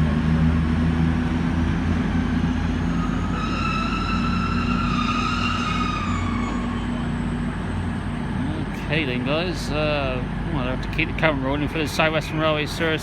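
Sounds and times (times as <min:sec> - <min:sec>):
diesel trains idling: 0:00.0 - 0:13.0.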